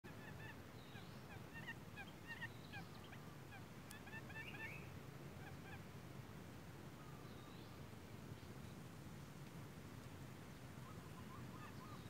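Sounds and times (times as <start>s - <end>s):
birds chirping: 0.1s - 5.8s, 10.8s - 12.0s.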